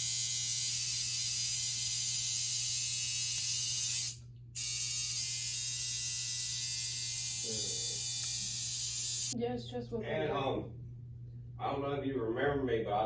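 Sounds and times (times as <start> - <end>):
tattoo machine buzzing: 0.0 - 9.4.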